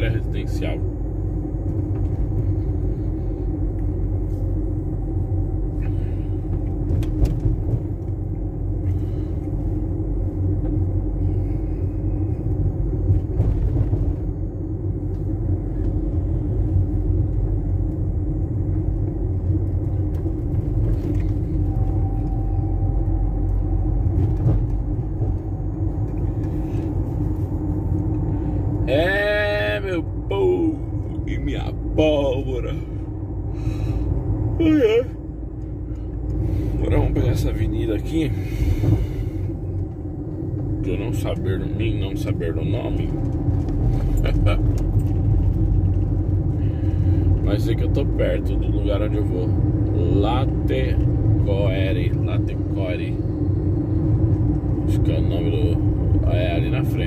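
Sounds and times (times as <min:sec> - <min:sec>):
van engine and road rumble: 0:00.0 - 0:57.0.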